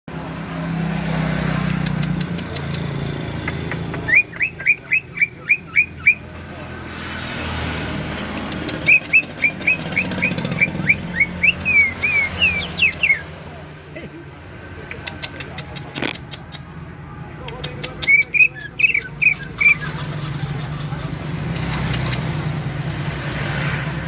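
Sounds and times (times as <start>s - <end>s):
songbird whistling rising notes: 8.8s - 13.3s.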